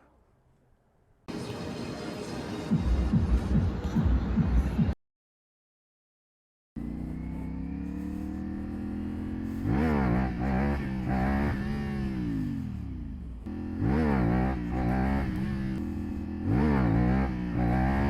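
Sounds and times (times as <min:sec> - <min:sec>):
motorcycle engine revving: 0:06.8 - 0:18.0
motorcycle throttle blips: 0:06.8 - 0:18.0.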